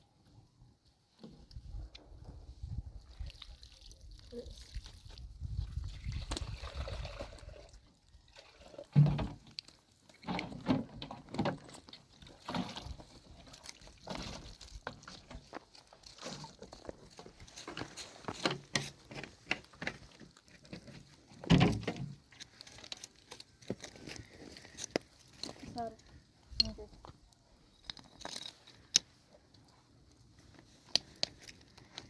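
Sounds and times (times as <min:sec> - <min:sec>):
water pouring and sloshing: 0:02.1 - 0:26.2.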